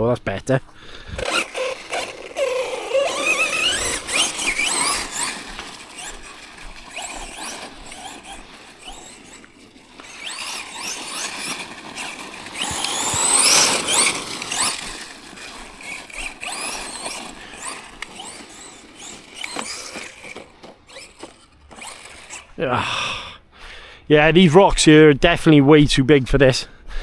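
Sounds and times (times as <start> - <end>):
tyres crunching on stones: 0.5 - 23.2
electric motor whining: 0.7 - 23.3.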